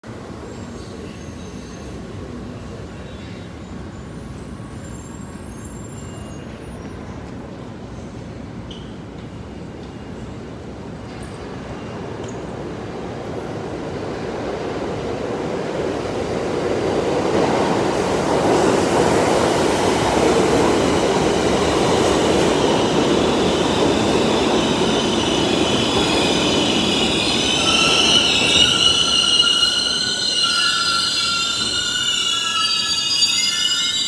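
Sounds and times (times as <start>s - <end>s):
train brakes squealing: 0.4s - 7.3s, 17.9s - 34.0s
train wheels rumbling on rails: 6.4s - 34.0s.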